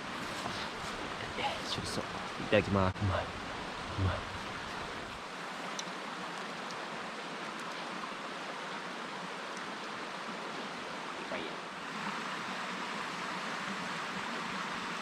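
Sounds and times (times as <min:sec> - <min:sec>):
steady rushing background noise: 0:00.0 - 0:15.0
faint clicks: 0:05.7 - 0:06.8.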